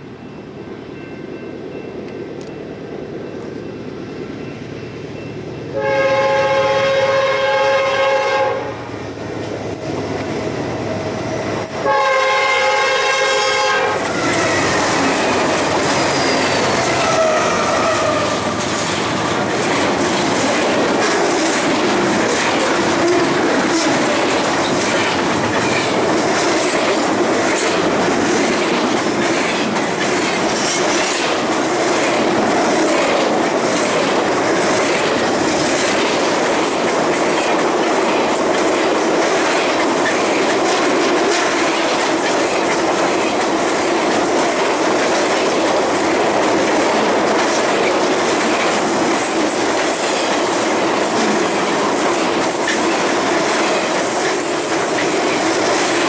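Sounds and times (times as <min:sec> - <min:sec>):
train wheels clicking over rail joints: 0:13.0 - 0:56.0.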